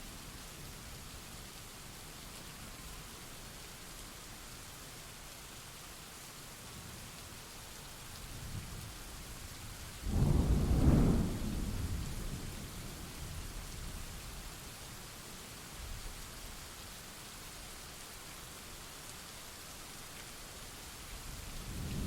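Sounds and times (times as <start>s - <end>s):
steady rain hiss: 0.0s - 22.0s
thunderclap rumbling: 10.1s - 12.6s.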